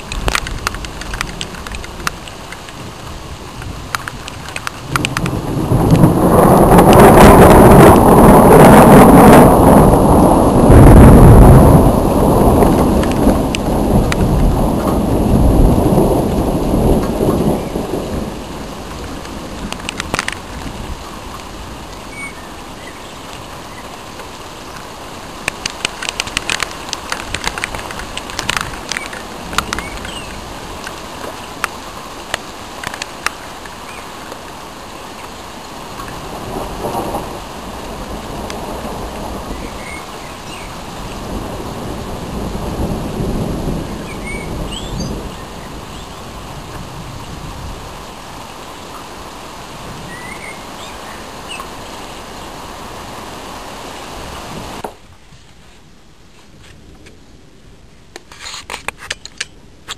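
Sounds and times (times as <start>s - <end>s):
thunder rumbling: 0.0s - 24.0s, 25.0s - 32.1s, 36.0s - 48.6s
raindrops ticking on surface: 0.0s - 55.1s
steady rain: 0.0s - 59.9s.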